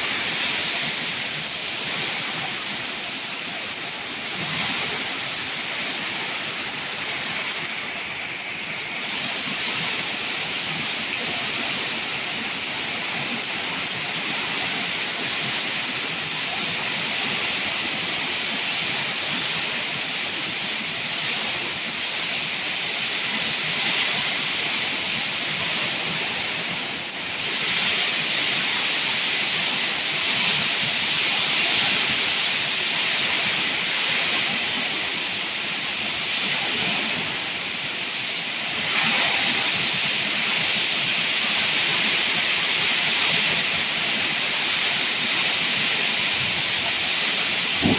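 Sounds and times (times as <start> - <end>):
torrential rain: 0.0 - 47.9.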